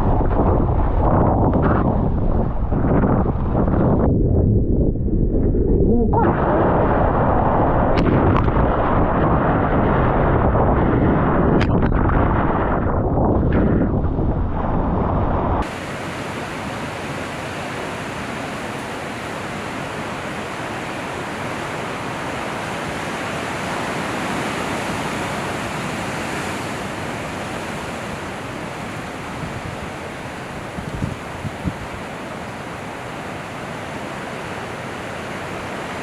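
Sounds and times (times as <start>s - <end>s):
loud low rumble: 0.0s - 15.6s
ocean surf rushing: 6.2s - 11.6s, 14.8s - 36.0s.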